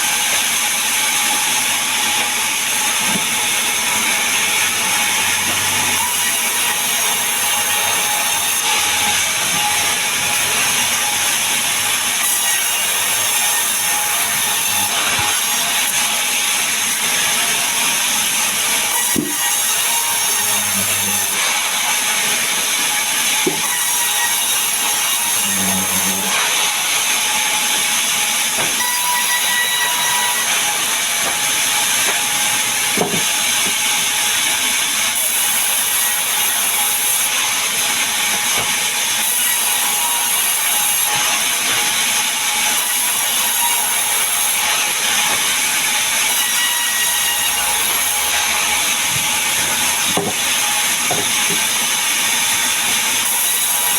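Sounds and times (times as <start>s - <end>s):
power saw cutting wood: 0.0s - 53.9s
timber knocking: 49.1s - 50.5s, 51.1s - 51.7s.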